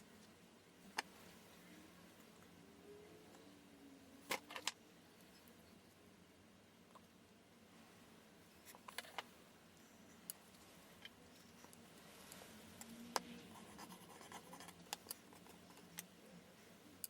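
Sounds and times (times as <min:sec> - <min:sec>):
faint low hum: 0:00.0 - 0:17.0
light clicks and scratches: 0:08.6 - 0:16.2.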